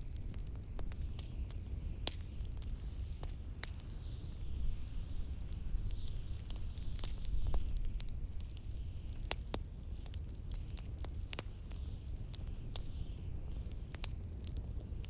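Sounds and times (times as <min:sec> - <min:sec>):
low rumble of wind: 0:00.0 - 0:15.0
wood fire crackling and popping: 0:00.0 - 0:15.0.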